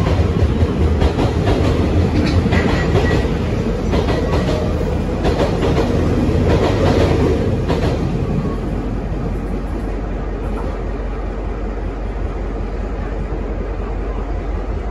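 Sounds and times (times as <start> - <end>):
steel wheels clacking over track joints: 0.0 - 8.2
freight train rumble: 0.0 - 14.9.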